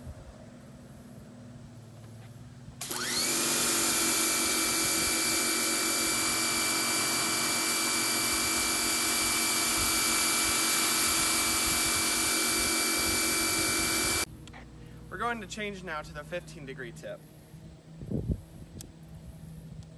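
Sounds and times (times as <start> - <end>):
pressure washer motor whine: 2.8 - 14.3.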